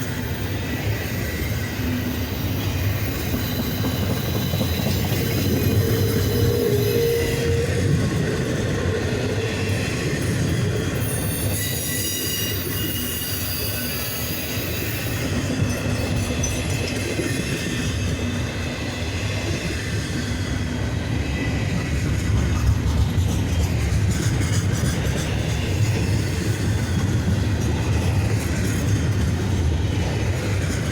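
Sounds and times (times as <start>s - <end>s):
train wheels rumbling on rail: 0.0s - 30.9s
high-pitched wheel squeal: 0.1s - 7.8s, 11.0s - 15.3s.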